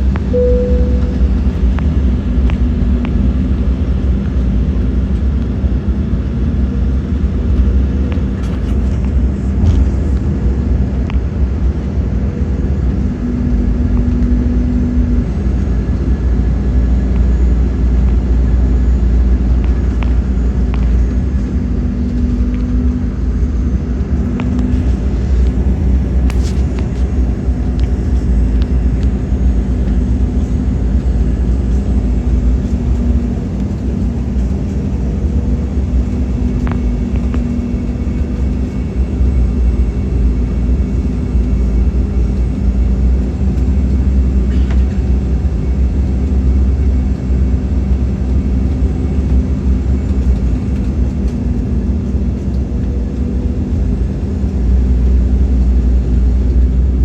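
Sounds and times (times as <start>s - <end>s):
faint wavering hum: 0.0s - 3.6s
jet engine cabin rumble: 0.0s - 57.0s.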